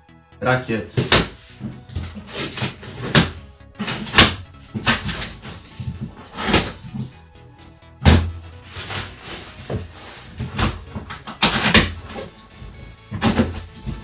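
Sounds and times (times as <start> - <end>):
knocks and rustles of packing: 0.9 - 14.0
cardboard box thump: 8.0 - 14.0.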